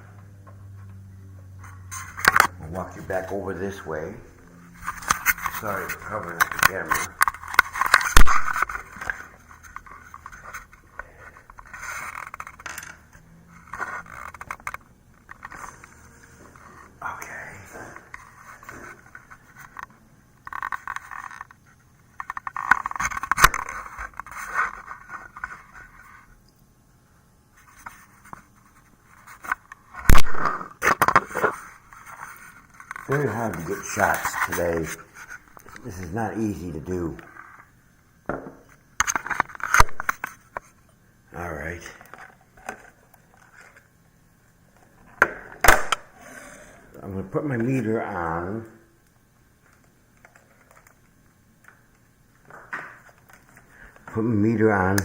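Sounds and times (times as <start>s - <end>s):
scraping and rustling at microphone: 0.6s - 26.4s, 27.5s - 30.2s, 31.1s - 36.3s
rubbing sounds: 1.6s - 17.0s, 20.5s - 26.3s
camera handling noise: 2.0s - 2.5s, 4.8s - 10.7s, 22.2s - 25.6s, 29.3s - 35.8s, 39.0s - 40.7s.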